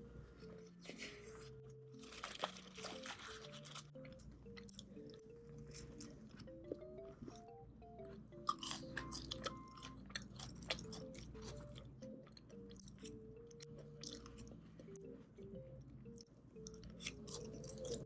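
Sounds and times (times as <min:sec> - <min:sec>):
soft background music: 0:00.0 - 0:18.0
crunching crisp food: 0:01.9 - 0:05.1, 0:08.5 - 0:13.1.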